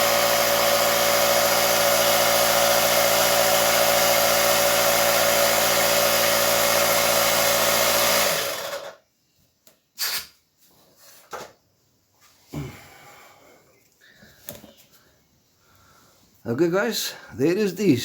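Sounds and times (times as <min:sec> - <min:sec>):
small air compressor running: 0:00.0 - 0:09.0.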